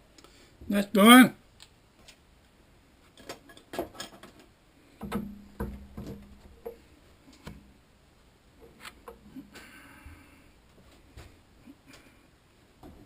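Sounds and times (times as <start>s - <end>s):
metal tools clicking and knocking: 3.2s - 4.4s.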